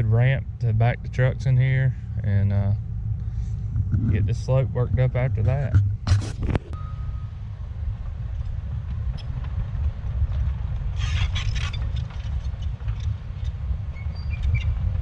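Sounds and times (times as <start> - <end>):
diesel loader rumbling: 0.0 - 15.0
metallic squeaks and clanks: 11.0 - 14.8.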